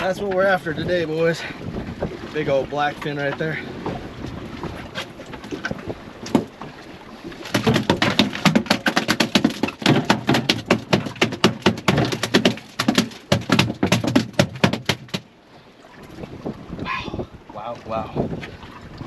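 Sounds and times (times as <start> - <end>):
fish tail thumping on deck: 7.4 - 15.3.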